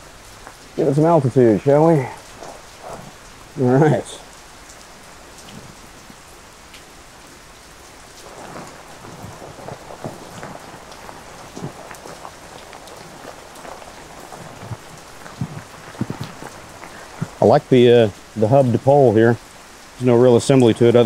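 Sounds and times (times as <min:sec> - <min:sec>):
steady rain falling: 0:00.0 - 0:21.0
tent fly rustling and knocking: 0:00.1 - 0:19.0.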